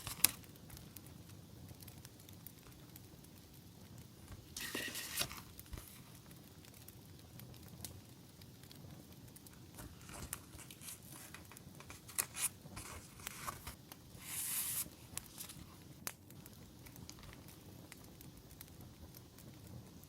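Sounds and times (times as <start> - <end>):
packaging rustling and crinkling: 0.0 - 0.5, 4.5 - 6.2, 9.7 - 15.8
campfire crackling: 0.0 - 20.0.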